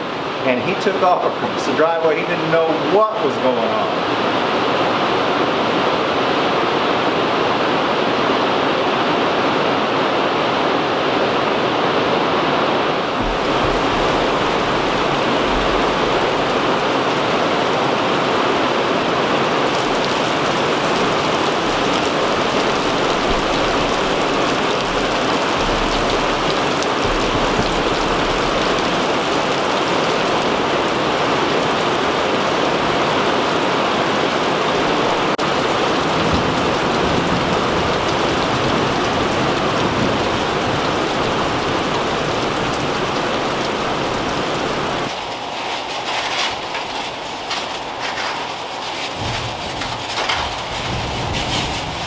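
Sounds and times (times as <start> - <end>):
heavy rain hissing: 0.0 - 52.0
low thunder rumbles: 13.0 - 33.0, 34.7 - 45.1, 46.8 - 52.0.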